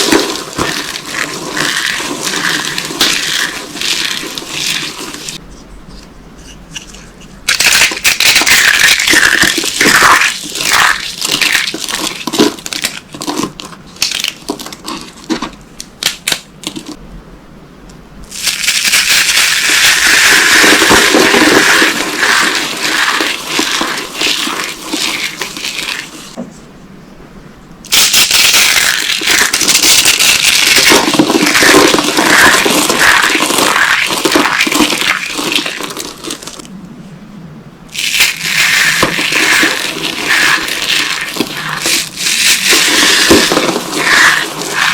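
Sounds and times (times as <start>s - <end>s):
soap boxes being crushed: 38.0s - 44.9s.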